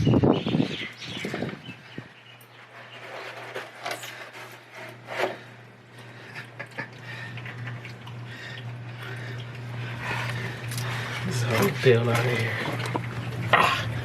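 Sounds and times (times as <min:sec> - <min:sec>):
steady low hum: 0:00.0 - 0:14.0
parts knocking and scraping: 0:02.5 - 0:05.6.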